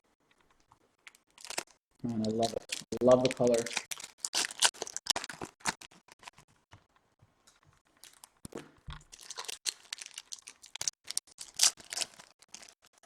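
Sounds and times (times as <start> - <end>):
wrapper crinkling and tearing: 1.0 - 6.4, 8.0 - 13.0.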